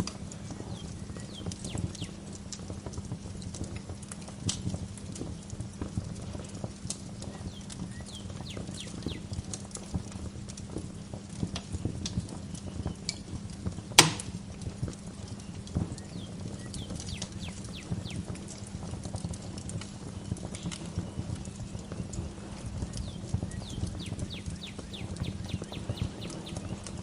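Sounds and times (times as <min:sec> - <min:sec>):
songbirds chirping: 0:00.1 - 0:02.4, 0:05.2 - 0:10.4, 0:11.7 - 0:27.0
wood fire crackling: 0:00.1 - 0:27.0
loud sharp pop: 0:14.0 - 0:14.4.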